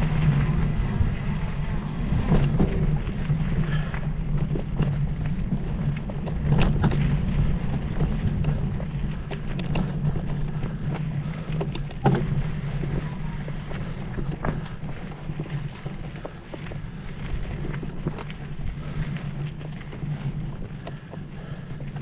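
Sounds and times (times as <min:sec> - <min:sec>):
wind buffeting microphone: 0:00.0 - 0:22.0
sharp clicks and knocks: 0:09.2 - 0:10.0, 0:11.5 - 0:12.3.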